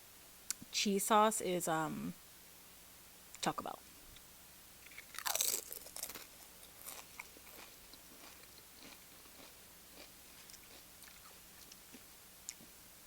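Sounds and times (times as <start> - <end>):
chewing crunchy chip: 4.8 - 12.7.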